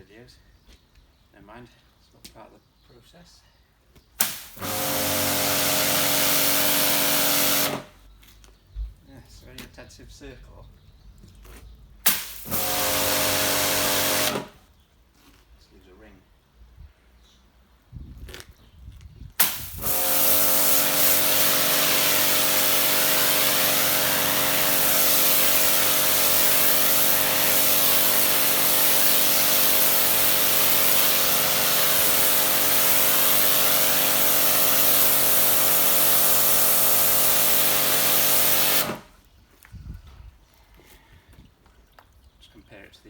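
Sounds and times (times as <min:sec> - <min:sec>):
high-pressure water jet hissing: 0:04.2 - 0:07.9, 0:12.1 - 0:14.6, 0:19.4 - 0:39.1
pressure washer motor and pump: 0:04.2 - 0:07.9, 0:12.1 - 0:14.6, 0:19.4 - 0:39.2.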